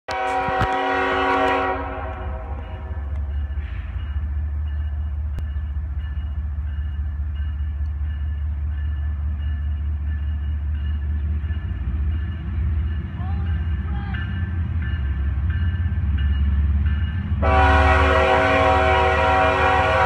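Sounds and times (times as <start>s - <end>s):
locomotive horn chord: 0.1s - 3.2s, 17.4s - 20.0s
locomotive engine rumble: 0.1s - 20.0s.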